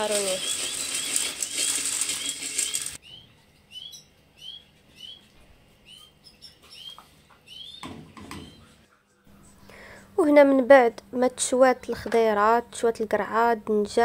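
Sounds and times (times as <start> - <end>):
small bird chirping: 2.2 - 8.8.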